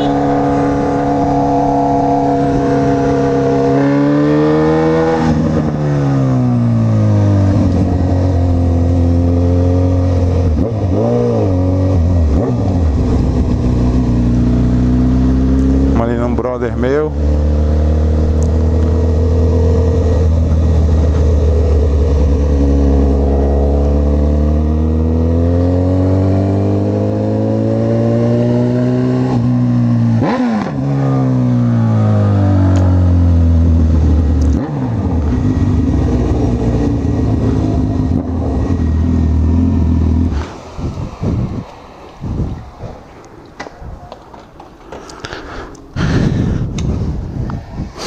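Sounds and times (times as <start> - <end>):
motorcycle engine accelerating: 0.0 - 43.1.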